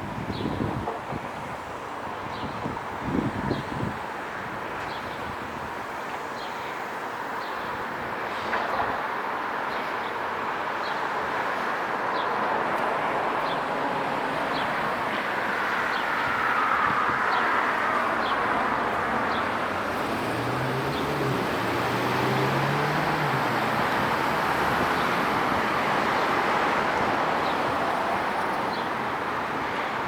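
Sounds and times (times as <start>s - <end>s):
road traffic passing: 4.2s - 30.0s
low engine hum: 19.0s - 26.4s.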